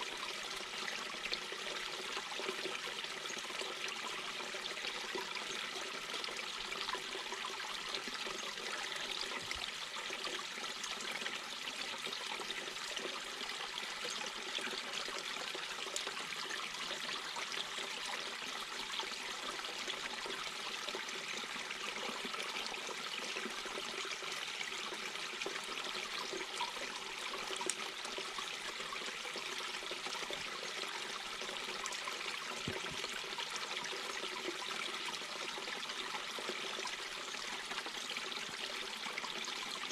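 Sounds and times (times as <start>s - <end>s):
brook water running over stones: 0.0s - 39.9s.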